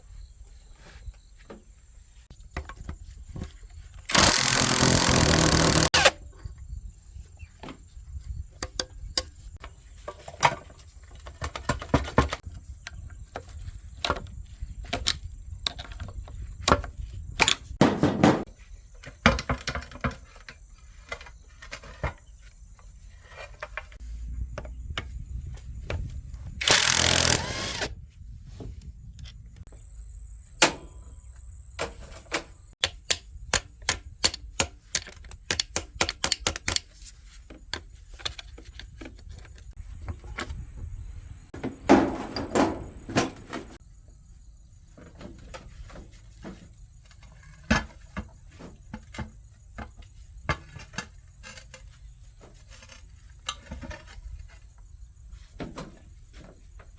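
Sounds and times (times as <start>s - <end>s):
noisy rattling: 4.1s - 6.2s, 26.6s - 27.9s
sharp clicks and knocks on metal: 31.8s - 37.1s.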